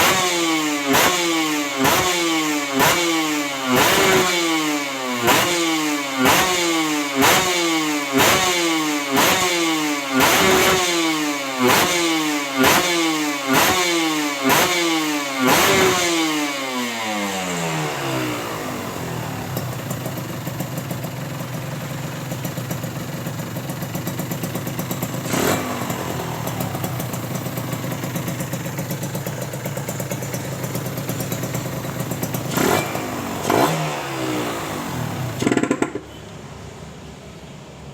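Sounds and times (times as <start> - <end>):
motorcycle idling: 0.0 - 36.2
motorcycle throttle blips: 18.8 - 36.4.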